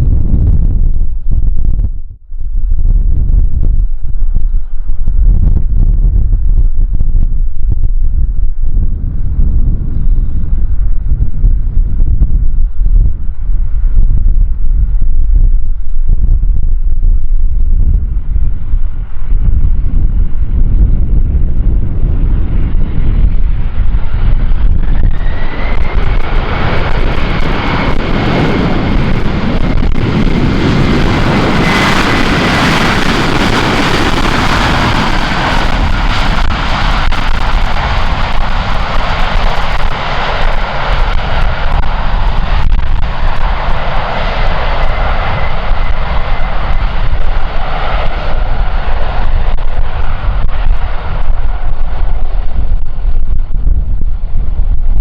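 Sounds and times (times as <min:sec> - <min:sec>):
wind buffeting microphone: 0:00.0 - 0:55.0
jet engines whining: 0:21.5 - 0:54.7.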